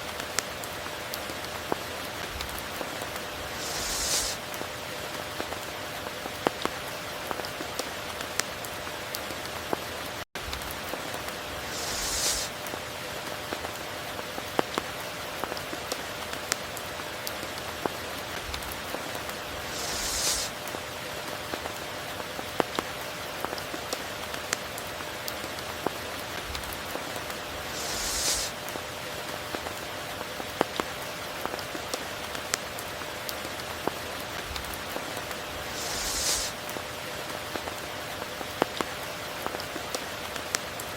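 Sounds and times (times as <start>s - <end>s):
rain pattering: 0.0s - 40.9s
brief high hiss: 3.5s - 4.5s, 11.6s - 12.6s, 19.6s - 20.6s, 27.6s - 28.6s, 35.7s - 36.6s.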